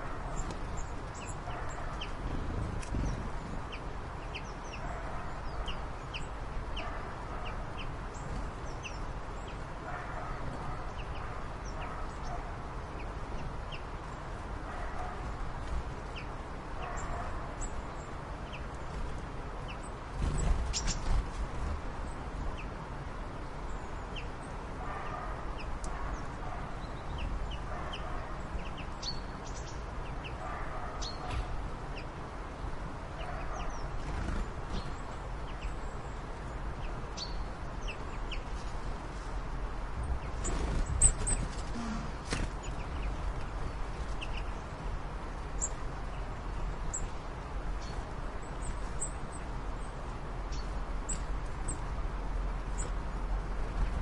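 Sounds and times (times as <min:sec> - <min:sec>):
steady low rumble: 0:00.0 - 0:04.5
birds chirping and calling: 0:00.0 - 0:14.0, 0:19.7 - 0:22.7, 0:23.8 - 0:32.1, 0:40.0 - 0:51.9.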